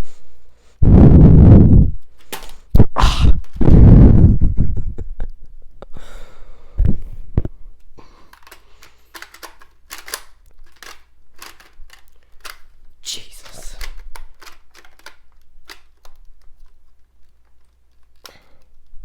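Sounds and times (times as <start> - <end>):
light plastic clicks and rattles: 8.2 - 19.0.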